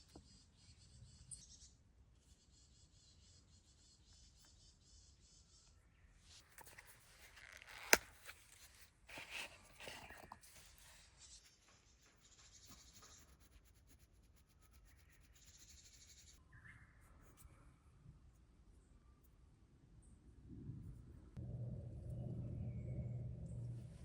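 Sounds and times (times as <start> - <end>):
rustling of gear being handled: 6.4 - 10.8.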